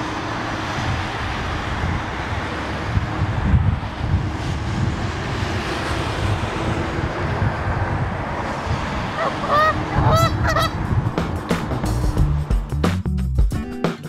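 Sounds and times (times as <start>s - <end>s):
wind on microphone: 0.0s - 12.4s
geese honking: 9.2s - 10.8s.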